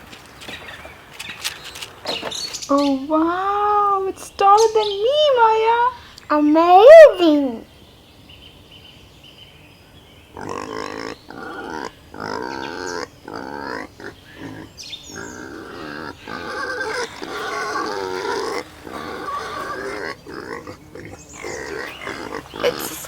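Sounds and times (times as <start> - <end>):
pigs calling: 10.3 - 23.0.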